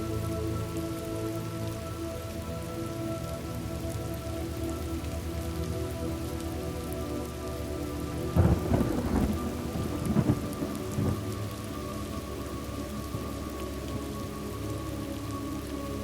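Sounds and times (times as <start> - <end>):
faint low drone: 0.0 - 16.0
steady rain falling: 0.0 - 16.0
thunder crack and rumble: 8.4 - 11.3.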